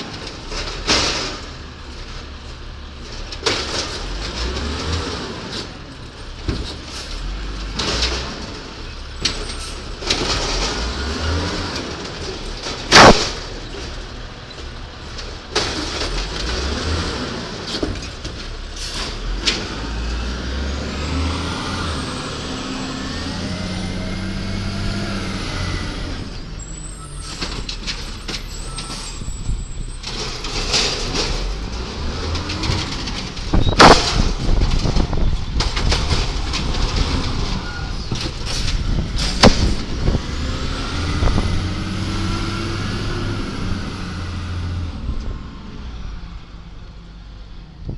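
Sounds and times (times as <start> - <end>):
diesel engine revving: 3.0 - 47.6
sharp bangs: 12.8 - 13.6, 32.4 - 37.6.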